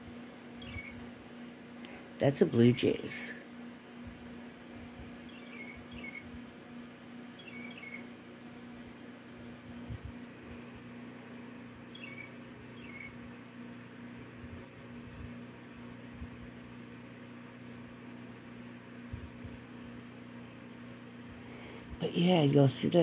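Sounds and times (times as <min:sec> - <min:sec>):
steady low hum: 0:00.0 - 0:23.0
faint bird chirps: 0:00.5 - 0:01.0, 0:04.4 - 0:06.3, 0:07.3 - 0:08.2, 0:11.8 - 0:13.2.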